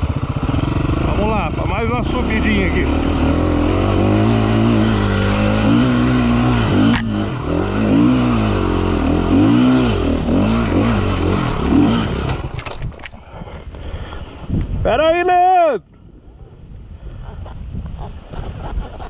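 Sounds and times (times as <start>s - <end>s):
dirt bike engine revving: 0.0s - 12.8s.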